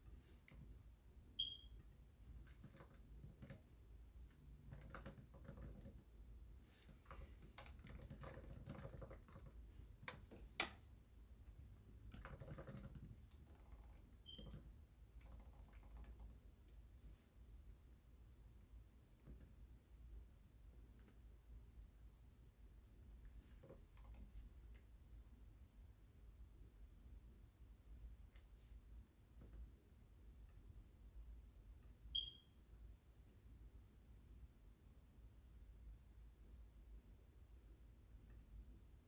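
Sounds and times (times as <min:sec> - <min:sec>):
keyboard typing: 0:02.4 - 0:03.7, 0:04.3 - 0:06.1, 0:06.8 - 0:10.2, 0:12.0 - 0:16.4.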